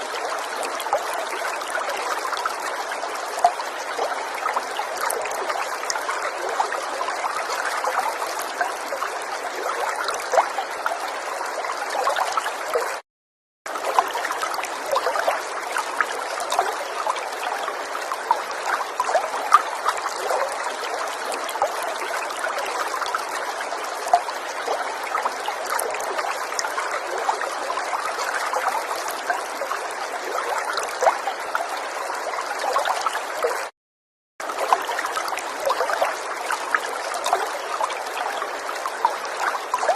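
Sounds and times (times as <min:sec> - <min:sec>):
river water flowing: 0:00.0 - 0:13.0, 0:13.7 - 0:33.7, 0:34.4 - 0:39.9
small water splashes: 0:34.4 - 0:39.9.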